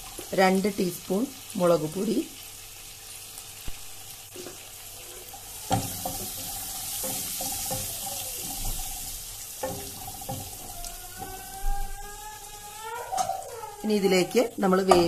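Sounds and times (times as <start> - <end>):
onions sizzling in hot oil: 0.0 - 15.0
spatula knocking on pan: 5.7 - 8.9, 9.6 - 11.9, 14.8 - 15.0.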